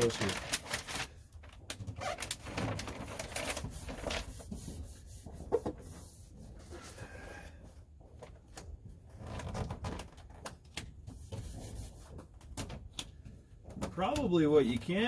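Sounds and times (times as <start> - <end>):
mat rustling and rubbing: 2.0 - 10.3.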